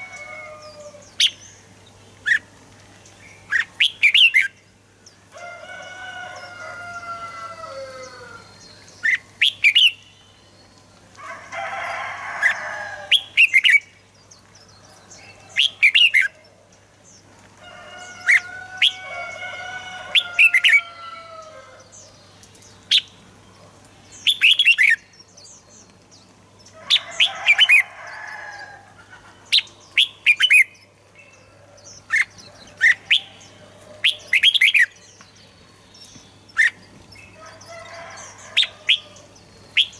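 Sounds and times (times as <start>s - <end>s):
birds whistling song: 0.0s - 5.2s, 7.9s - 11.0s, 24.1s - 28.7s, 29.4s - 39.9s
birds chattering calls: 0.0s - 39.9s.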